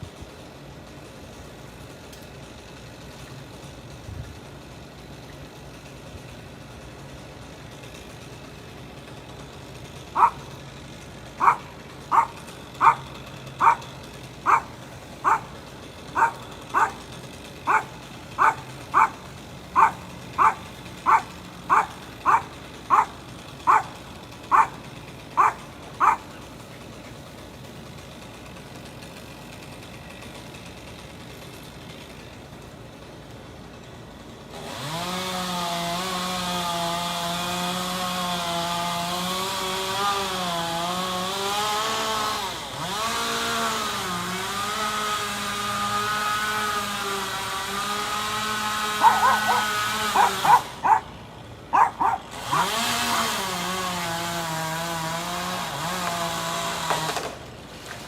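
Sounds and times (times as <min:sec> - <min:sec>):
dog barking: 0:10.2 - 0:10.4, 0:11.4 - 0:15.5, 0:16.2 - 0:17.0, 0:17.7 - 0:19.2, 0:19.8 - 0:23.9, 0:24.5 - 0:24.8, 0:25.4 - 0:26.3, 0:49.0 - 0:51.1, 0:51.7 - 0:52.3.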